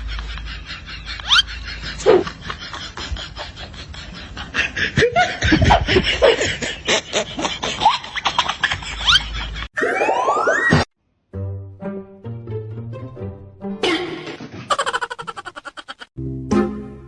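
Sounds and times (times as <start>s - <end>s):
person laughing: 0.0s - 9.7s, 13.8s - 16.1s.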